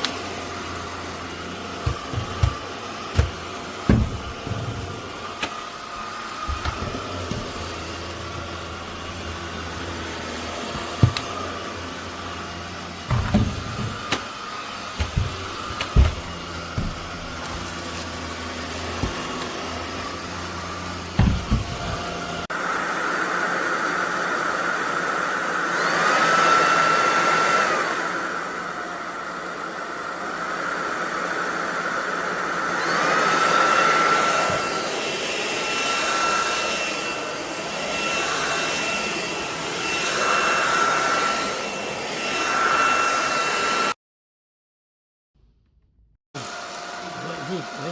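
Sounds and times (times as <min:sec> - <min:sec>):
vacuum cleaner motor whine: 0:00.0 - 0:44.0, 0:46.4 - 0:47.9
sharp knocks: 0:01.8 - 0:05.6, 0:06.4 - 0:07.9, 0:10.7 - 0:11.4, 0:13.1 - 0:14.3, 0:14.9 - 0:17.9, 0:19.0 - 0:19.5, 0:21.2 - 0:22.2.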